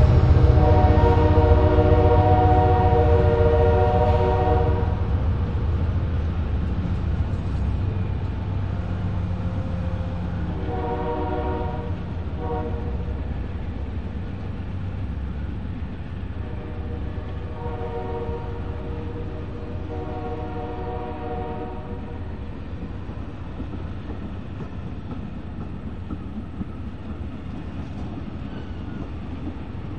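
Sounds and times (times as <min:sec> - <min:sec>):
locomotive horn chord: 0:00.0 - 0:05.0, 0:09.8 - 0:13.1, 0:16.4 - 0:22.2
train cars rolling past: 0:00.0 - 0:29.9.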